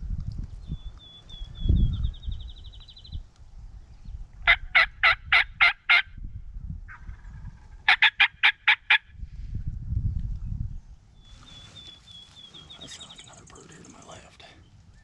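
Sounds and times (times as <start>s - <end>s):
wild turkey calling: 4.5s - 6.1s, 6.9s - 9.0s, 11.3s - 14.7s.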